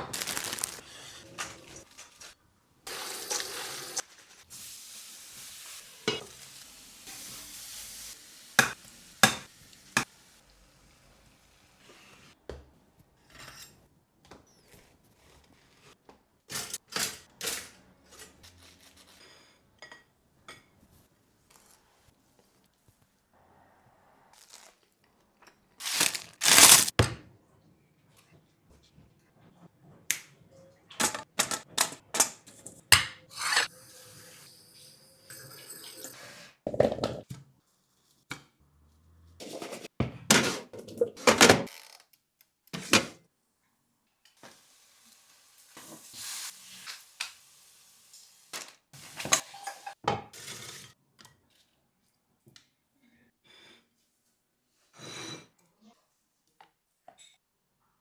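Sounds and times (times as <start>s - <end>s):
dishes and utensils clinking: 49.2s - 50.9s.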